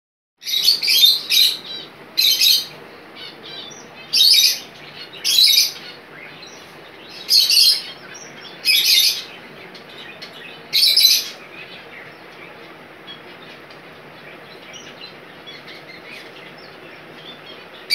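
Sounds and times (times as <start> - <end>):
bird chirping in loud bursts: 0.4 - 17.9
faint steady hiss: 0.4 - 17.9.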